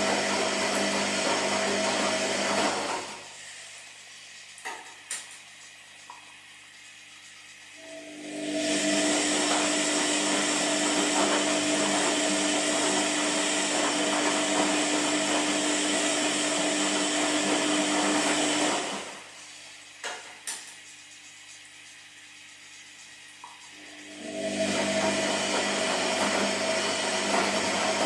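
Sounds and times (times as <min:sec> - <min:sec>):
washing machine whirring: 0:00.0 - 0:28.0.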